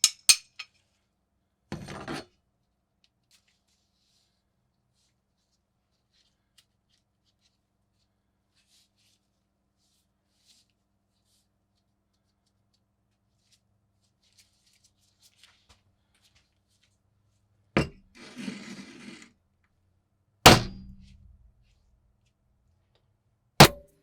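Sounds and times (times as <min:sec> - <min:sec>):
metal knocks on workbench: 0:17.8 - 0:18.0, 0:20.5 - 0:21.1, 0:23.6 - 0:23.9
rough scraping: 0:17.8 - 0:19.3.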